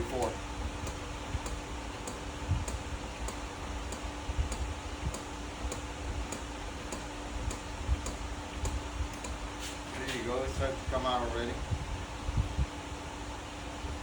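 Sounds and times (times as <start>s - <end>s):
steady low hum: 0.0s - 14.0s
light ticking: 0.2s - 9.4s.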